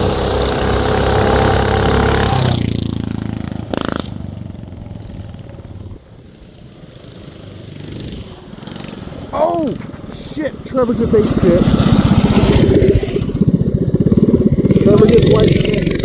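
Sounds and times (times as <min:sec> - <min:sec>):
mini bike engines running hard: 0:00.0 - 0:16.0.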